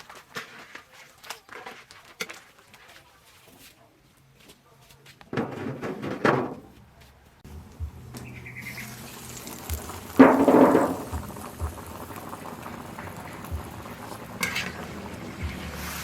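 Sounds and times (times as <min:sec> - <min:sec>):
soup bubbling in pot: 0:08.5 - 0:16.0.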